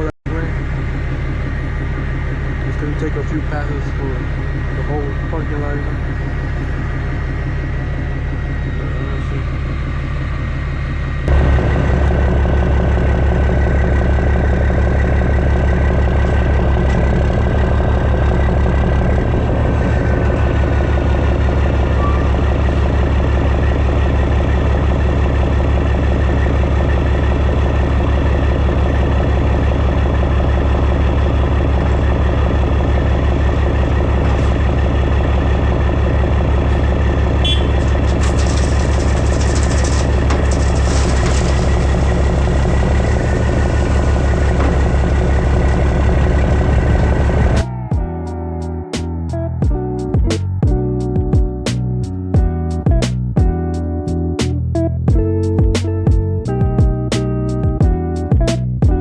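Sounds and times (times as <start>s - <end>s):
diesel engine rumbling: 0.0s - 59.0s.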